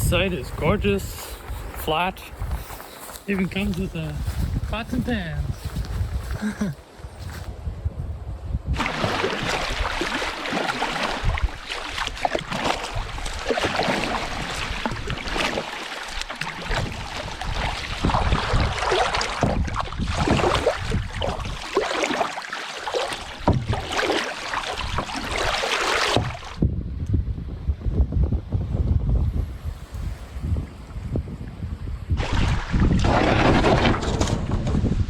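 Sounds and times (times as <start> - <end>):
wind buffeting the microphone: 0.0 - 15.6, 16.4 - 21.8, 23.2 - 24.0, 24.6 - 35.0
water splashing around a canoe: 8.8 - 26.6, 32.1 - 35.0.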